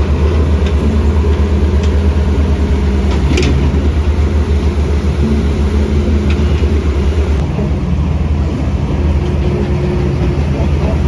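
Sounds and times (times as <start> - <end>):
heavy diesel engine drone: 0.0 - 11.0.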